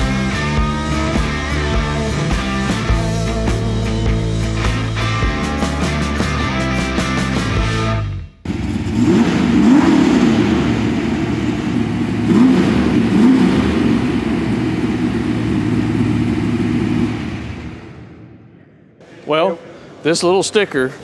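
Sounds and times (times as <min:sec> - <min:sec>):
rock music: 0:00.0 - 0:08.4
engine revving: 0:00.0 - 0:18.4.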